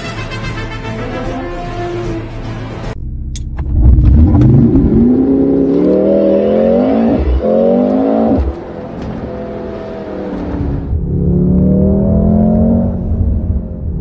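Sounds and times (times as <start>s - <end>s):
car engine accelerating hard: 3.6s - 14.0s.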